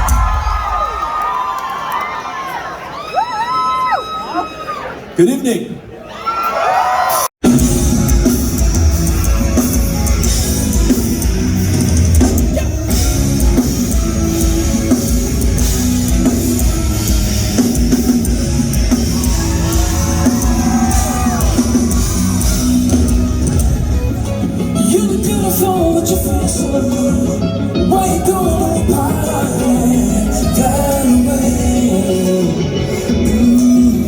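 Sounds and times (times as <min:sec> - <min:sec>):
rock band playing live: 0:07.1 - 0:34.0.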